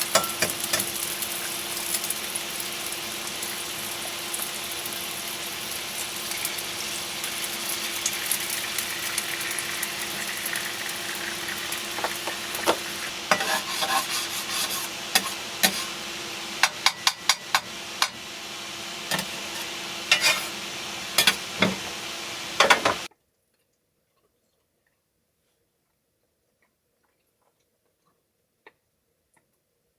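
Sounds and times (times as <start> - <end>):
food sizzling in a frying pan: 0.0 - 23.1
utensil scraping a pan: 11.9 - 18.2, 19.0 - 22.0.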